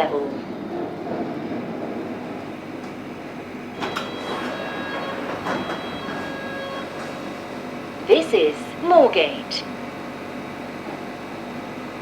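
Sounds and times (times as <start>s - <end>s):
train running: 0.0s - 12.0s
high brake squeals: 3.7s - 7.7s.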